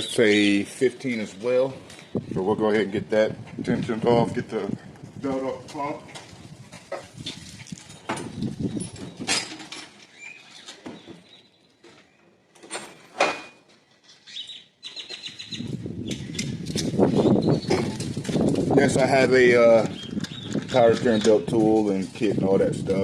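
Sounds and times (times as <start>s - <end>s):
handling noise: 15.2s - 22.4s.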